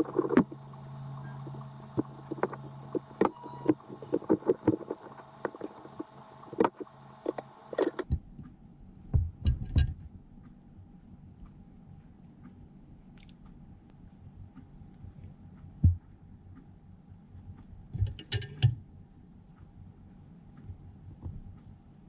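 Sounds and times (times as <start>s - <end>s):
light clicks and taps of objects: 0.0s - 8.0s
steady hum: 0.0s - 8.0s.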